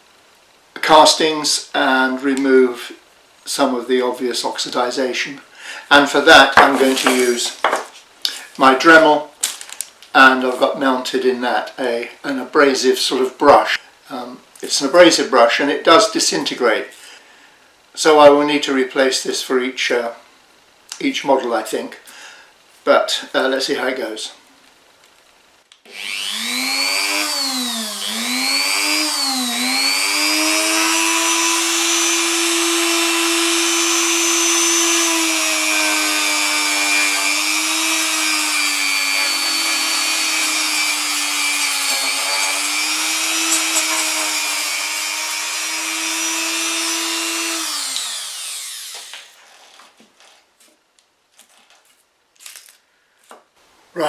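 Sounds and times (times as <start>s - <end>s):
rotary tool whining: 25.9s - 50.4s.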